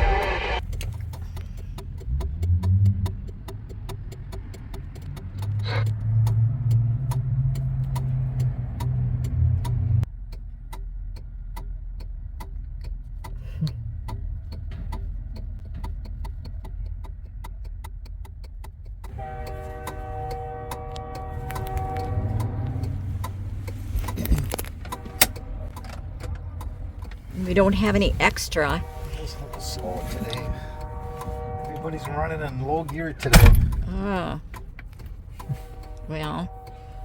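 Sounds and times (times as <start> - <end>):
loud low drone: 0.0 - 0.6
diesel engine idling: 0.0 - 37.0
light ticking: 0.0 - 37.0.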